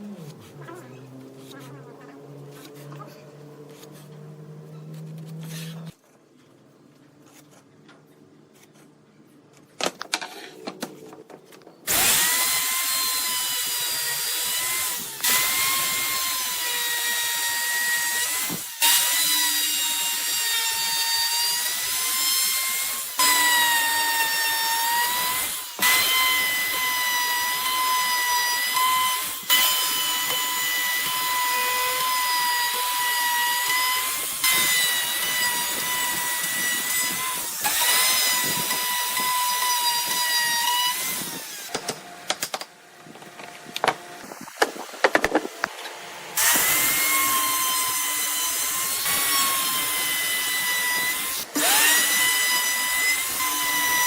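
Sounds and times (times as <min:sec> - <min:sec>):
power tool cutting wood: 0:00.2 - 0:06.0, 0:11.9 - 0:42.6, 0:43.2 - 0:54.0.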